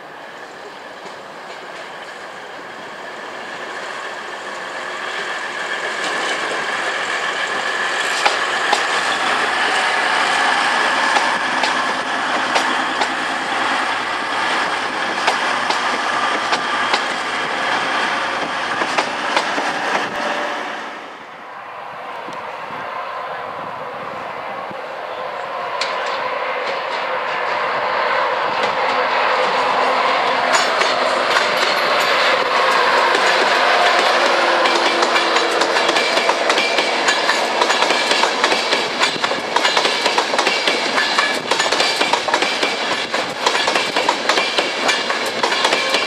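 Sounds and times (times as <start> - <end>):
steady high train whine: 0.0 - 46.0
wheels clicking over rail joints: 11.1 - 13.6, 30.3 - 46.0.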